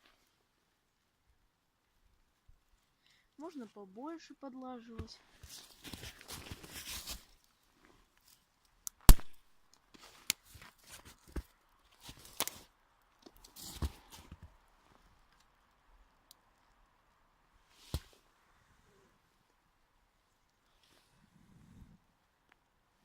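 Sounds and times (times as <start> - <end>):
rustles: 0.0 - 23.0
dry twigs snapping: 8.8 - 11.4, 12.1 - 13.6.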